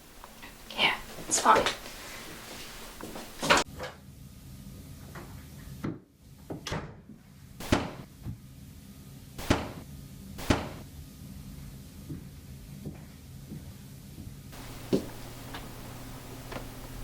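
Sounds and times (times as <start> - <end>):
sharp knocks or bangs: 7.6 - 8.1, 9.4 - 9.8, 10.4 - 10.8.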